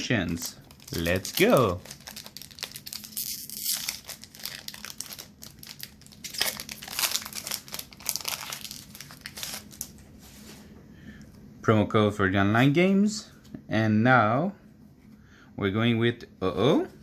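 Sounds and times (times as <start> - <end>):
foil wrapper crinkling: 0.2 - 10.0.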